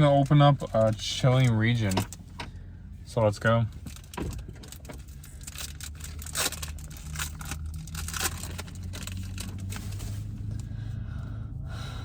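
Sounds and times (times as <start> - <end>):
low hum: 3.9 - 12.0
foil wrapper tearing and crinkling: 5.4 - 10.0.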